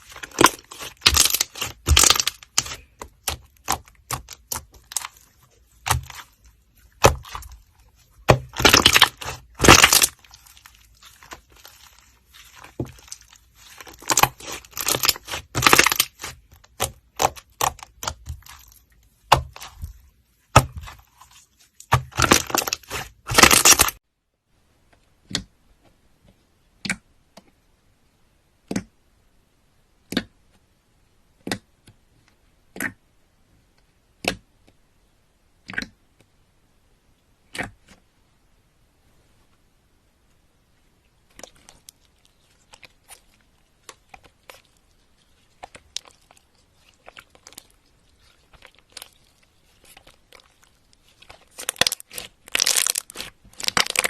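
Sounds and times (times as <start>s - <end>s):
slime crackling and crunching: 0.0s - 24.0s, 41.3s - 54.0s.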